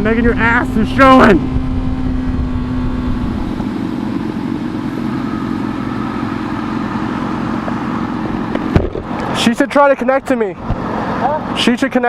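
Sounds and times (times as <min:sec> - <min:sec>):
wind rumble on microphone: 0:00.0 - 0:03.9
motorcycle engine running: 0:00.0 - 0:09.5.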